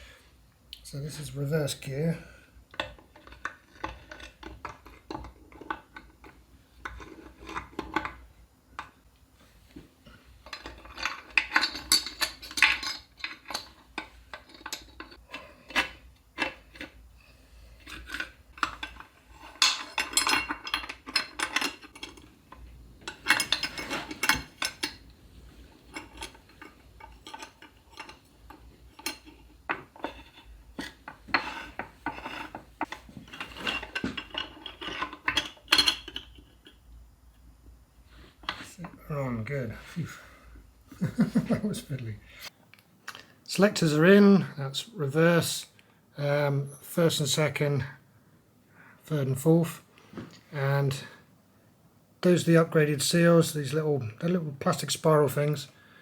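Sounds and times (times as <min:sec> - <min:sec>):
metal clinking and scraping: 0:02.7 - 0:08.9, 0:10.2 - 0:36.8.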